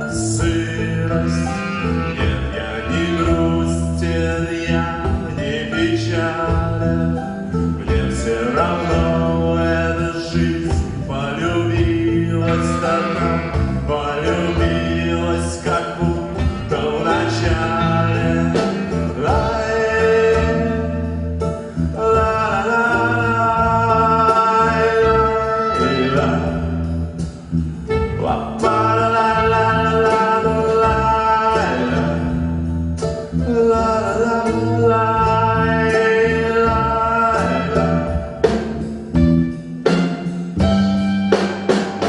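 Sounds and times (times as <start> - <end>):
plucked strings and bass: 0.0 - 42.0
person singing long notes: 7.8 - 26.8, 27.9 - 32.6.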